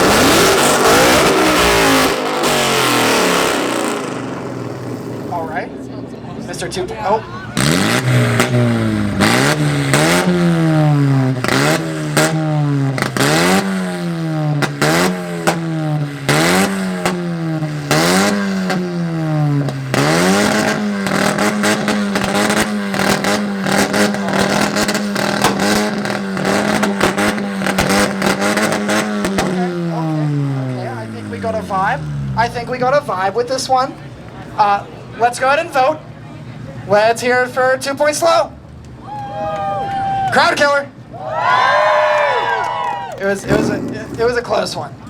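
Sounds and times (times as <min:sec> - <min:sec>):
car exhaust revving with pops: 0:00.0 - 0:05.4, 0:07.5 - 0:33.2
engine popping and crackling: 0:00.0 - 0:05.7, 0:07.5 - 0:32.9.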